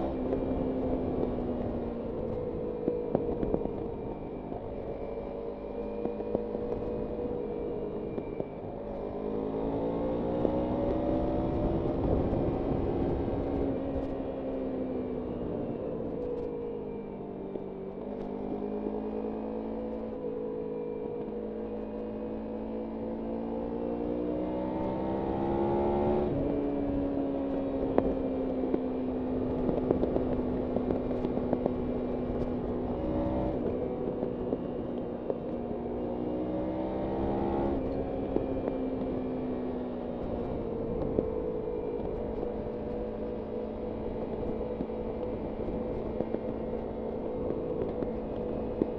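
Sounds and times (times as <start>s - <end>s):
motorcycle engine accelerating: 0.0s - 48.9s
wind noise: 9.7s - 14.4s, 24.7s - 35.7s, 36.5s - 48.9s.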